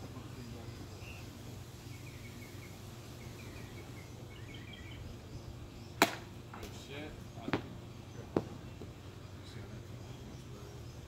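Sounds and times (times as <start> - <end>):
low background hum: 0.0 - 11.0
faint bird chirps: 0.2 - 6.0.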